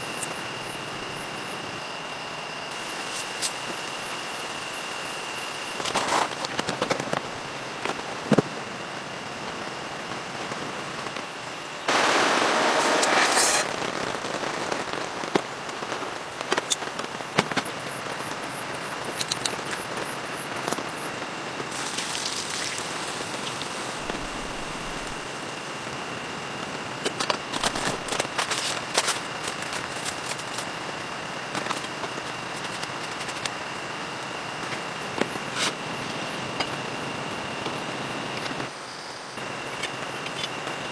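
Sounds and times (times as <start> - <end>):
steady rain: 11.8 - 18.8, 19.5 - 29.5
rush of noise: 11.9 - 15.2
sharp pops and crackles: 11.9 - 26.0, 26.6 - 33.6.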